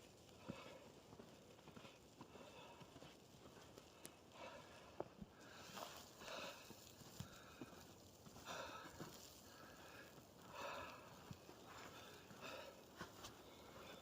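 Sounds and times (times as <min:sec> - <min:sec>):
footsteps crunching in snow: 0:05.4 - 0:14.0.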